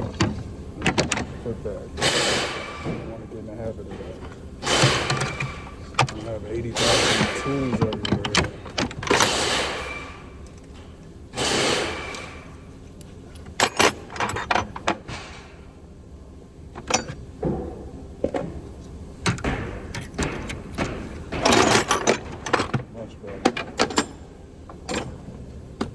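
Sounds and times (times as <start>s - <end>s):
hand tools clanking: 0.0s - 10.8s
metal drawers sliding: 4.1s - 10.3s, 19.3s - 25.9s.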